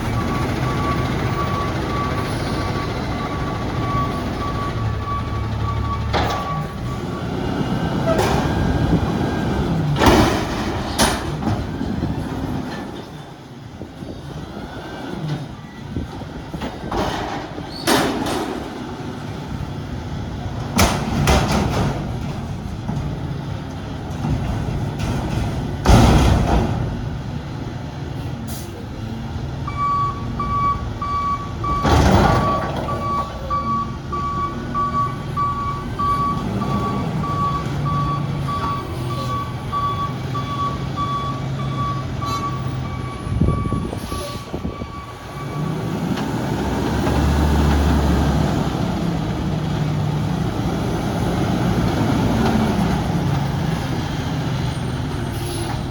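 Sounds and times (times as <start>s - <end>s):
backup alarm beeping: 29.7s - 45.7s.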